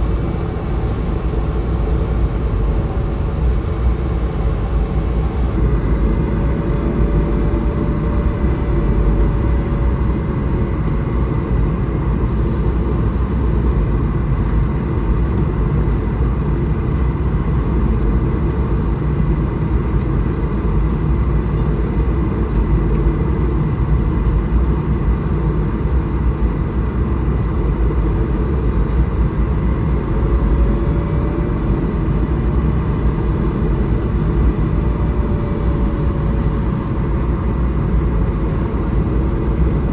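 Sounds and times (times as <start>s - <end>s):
aircraft cabin air rush: 0.0s - 12.7s, 27.3s - 39.9s
faint jet engine tone: 0.0s - 39.9s.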